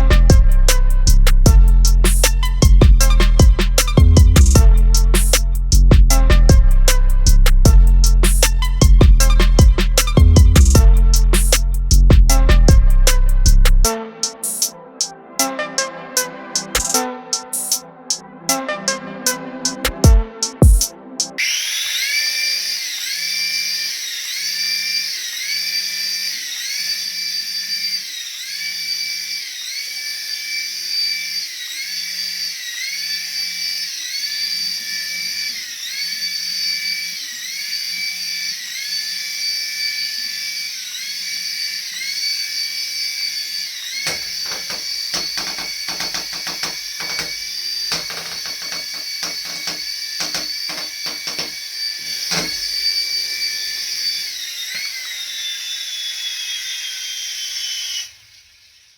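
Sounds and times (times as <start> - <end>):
toy electric motor whining: 6.9 - 12.1, 21.4 - 58.9
rapid clicks and knocks: 44.1 - 51.6.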